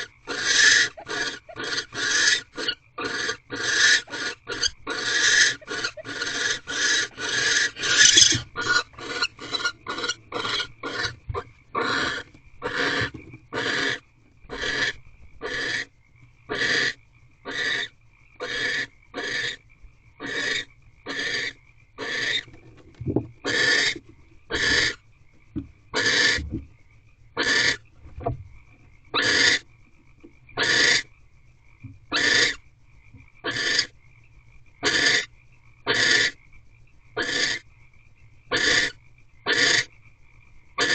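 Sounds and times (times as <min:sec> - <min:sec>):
barn owl hissing screeches: 0:00.0 - 0:11.1.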